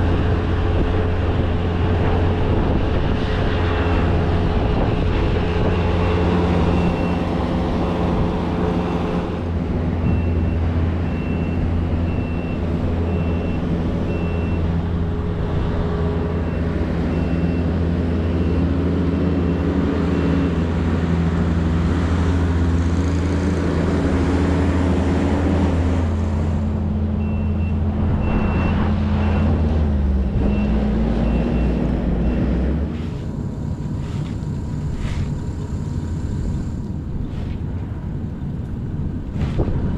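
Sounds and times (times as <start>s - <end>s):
vehicle engine running: 0.0s - 39.9s
backup alarm beeping: 5.6s - 7.3s, 10.0s - 14.8s, 27.2s - 29.6s.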